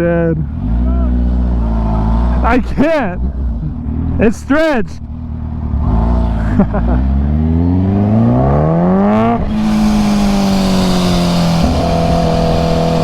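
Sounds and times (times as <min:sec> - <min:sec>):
motorcycle engine revving: 0:00.0 - 0:04.3, 0:05.0 - 0:13.0
wind rush: 0:09.1 - 0:13.0.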